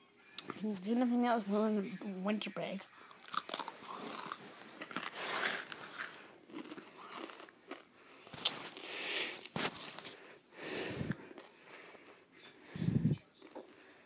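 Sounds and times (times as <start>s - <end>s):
crunching crisp cracker: 3.1s - 10.1s.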